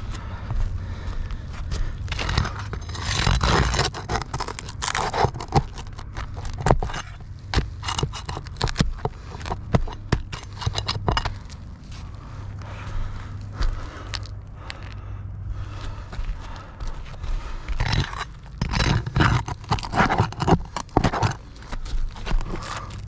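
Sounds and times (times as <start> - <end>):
flat bar scraping under shingles: 2.0 - 12.3, 17.4 - 23.0.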